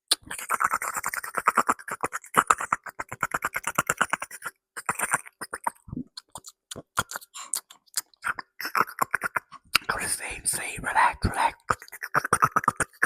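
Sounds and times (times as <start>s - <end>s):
wet mouth clicks and pops: 0.1s - 10.0s, 11.3s - 13.0s.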